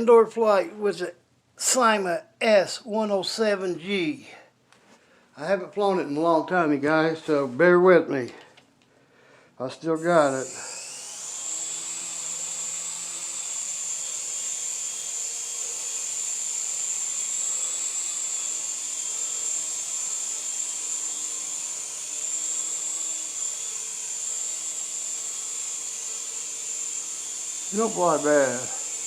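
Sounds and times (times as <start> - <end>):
toy helicopter rotors whining: 10.2 - 29.0.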